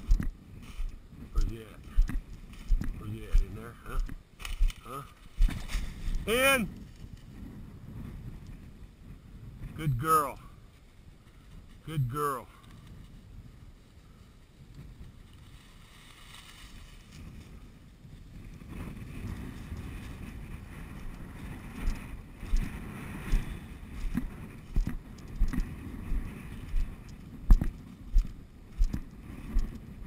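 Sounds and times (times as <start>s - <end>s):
brush rustling: 0.0s - 6.2s, 13.8s - 29.8s
footsteps through brush: 0.0s - 7.4s, 12.7s - 18.4s, 19.3s - 30.0s
wind on microphone: 0.0s - 11.9s, 12.7s - 30.0s.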